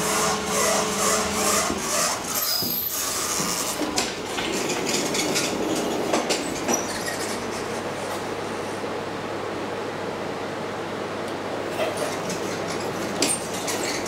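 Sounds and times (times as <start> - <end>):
train wheels clattering on rails: 1.7 - 8.3.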